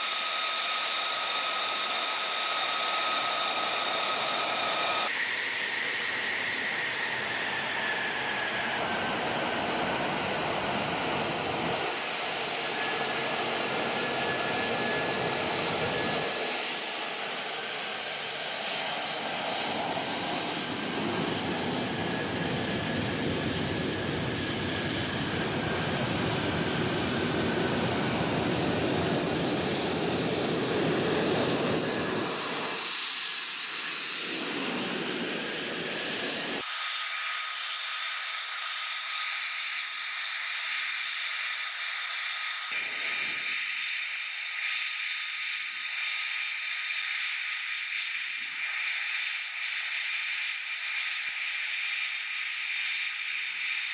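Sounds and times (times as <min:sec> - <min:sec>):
jet engine whine falling: 0:00.0 - 0:40.8, 0:41.4 - 0:44.0
jet engine running: 0:00.0 - 0:53.9.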